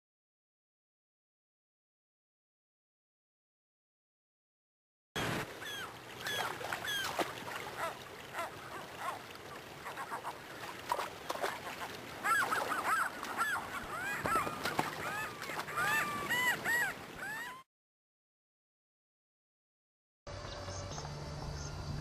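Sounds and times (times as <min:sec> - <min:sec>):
flock of birds calling: 0:05.2 - 0:17.6.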